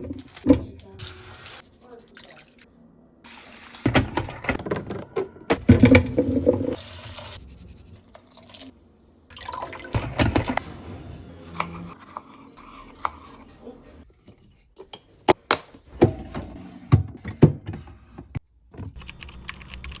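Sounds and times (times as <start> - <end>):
liquid pouring into container: 8.1 - 10.4.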